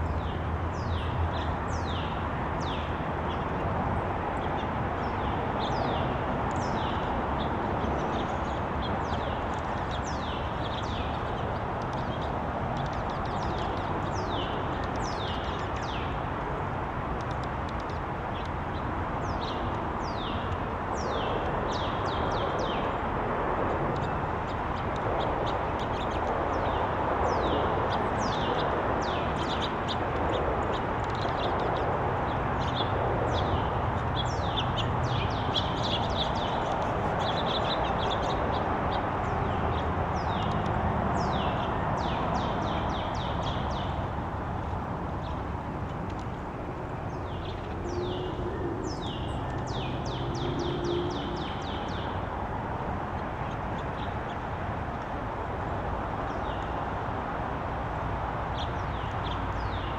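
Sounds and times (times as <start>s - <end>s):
steady background noise: 0.0s - 59.9s
small birds chirping: 0.1s - 23.0s, 23.9s - 55.2s.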